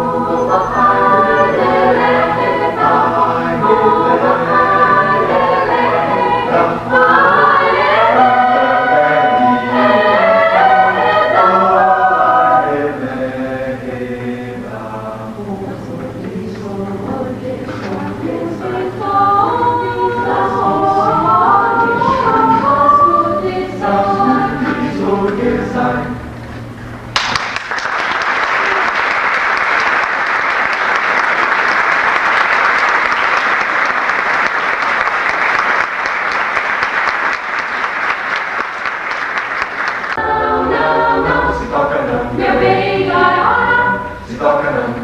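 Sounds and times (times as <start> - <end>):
choir singing: 0.0 - 26.7, 39.4 - 45.0
audience applause: 27.2 - 40.2.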